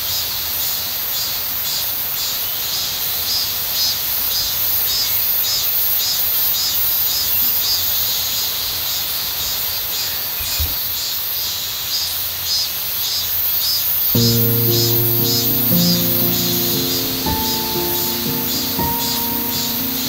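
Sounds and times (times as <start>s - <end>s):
constant high hiss: 14.2s - 20.0s.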